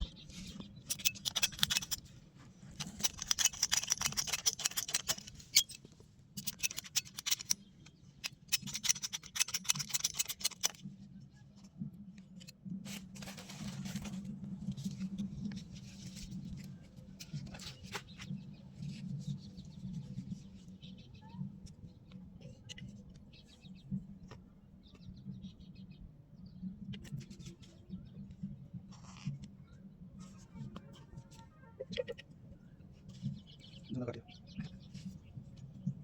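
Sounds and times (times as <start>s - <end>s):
scraping handling noise: 0.2s - 10.9s, 12.4s - 20.6s.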